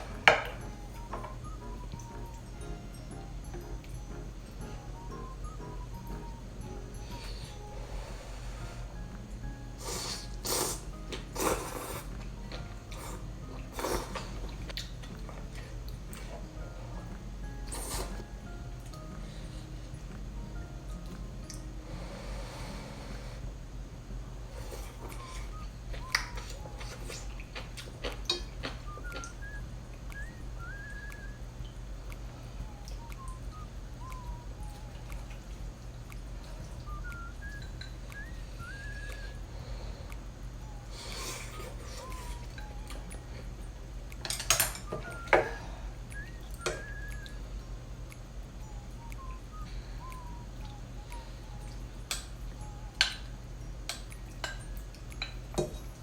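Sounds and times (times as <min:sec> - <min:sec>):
high chirping whistle tones: 0:00.0 - 0:11.5, 0:24.4 - 0:27.4, 0:28.3 - 0:43.6, 0:44.3 - 0:53.8
steady low hum: 0:00.0 - 0:56.0
slurping noodles and broth: 0:09.8 - 0:12.1, 0:12.9 - 0:14.5, 0:17.7 - 0:18.2, 0:41.0 - 0:42.4
eating clicks and smacks: 0:10.3 - 0:16.4, 0:24.8 - 0:39.4.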